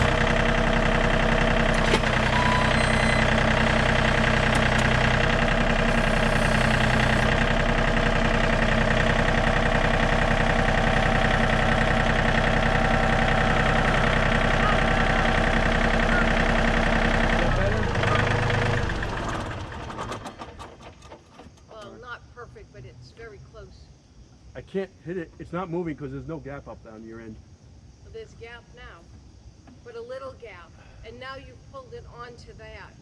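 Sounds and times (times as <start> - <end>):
tractor engine running: 0.0 - 22.2.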